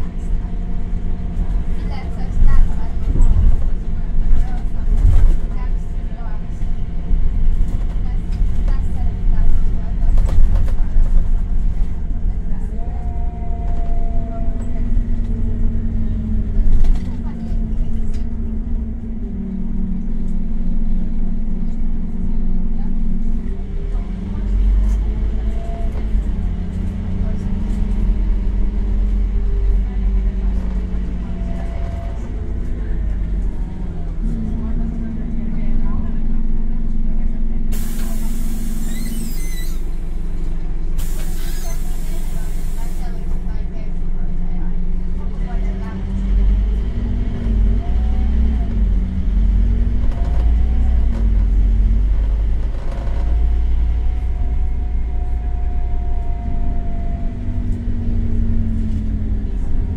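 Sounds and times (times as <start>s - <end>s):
bus diesel engine running: 0.0s - 59.9s
steady whine: 41.8s - 59.9s.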